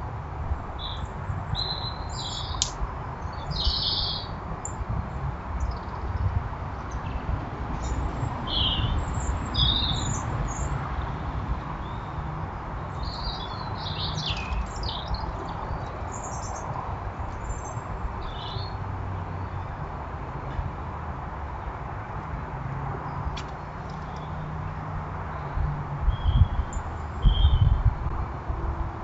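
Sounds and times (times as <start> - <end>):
small birds chirping: 0.8 - 4.8, 5.6 - 6.3, 7.8 - 11.2, 11.8 - 19.8, 23.1 - 24.6, 26.1 - 27.8.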